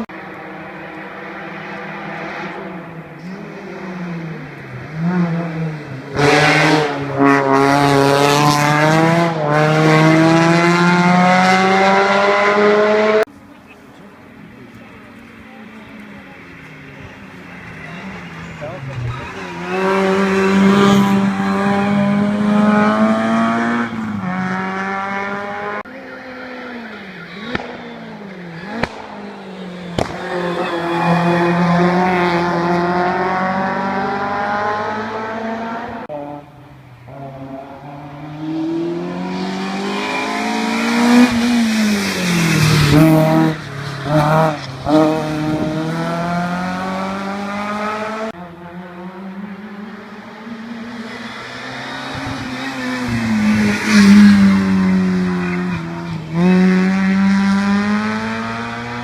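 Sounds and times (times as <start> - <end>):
race car engines revving high: 0.0 - 59.0
tyre squeal: 26.0 - 32.1
exhaust cracks: 28.6 - 30.6.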